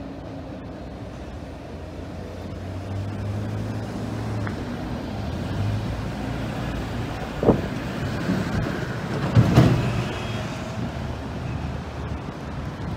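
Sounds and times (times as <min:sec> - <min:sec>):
freight train rumbling: 0:00.0 - 0:12.9.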